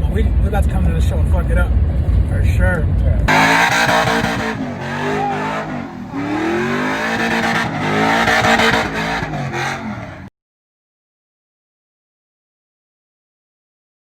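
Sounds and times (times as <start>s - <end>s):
truck engine revving: 0.0s - 10.3s.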